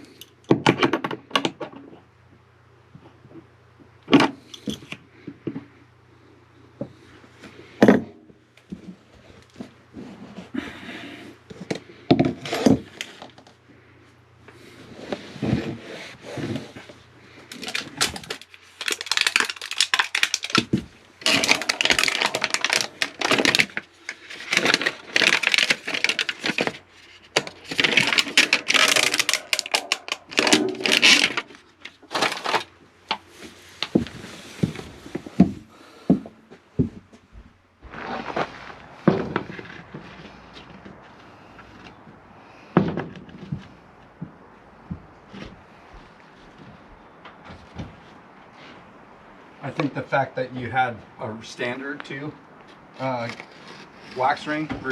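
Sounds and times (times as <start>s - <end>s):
hand tool scraping: 14.6s - 16.9s, 37.8s - 41.9s.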